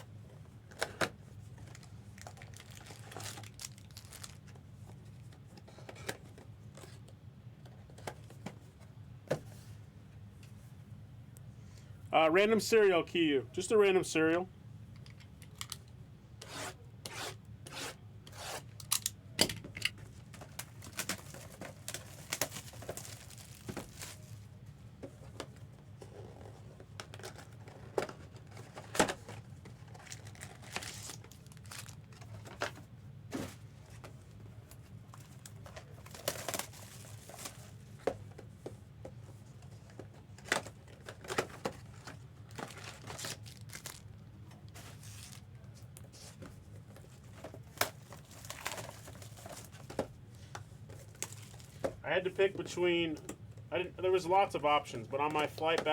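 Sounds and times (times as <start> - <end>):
packaging torn open and crinkled: 1.7 - 4.5, 20.6 - 24.3, 30.0 - 32.2, 36.1 - 37.6, 42.6 - 44.2, 47.8 - 49.6.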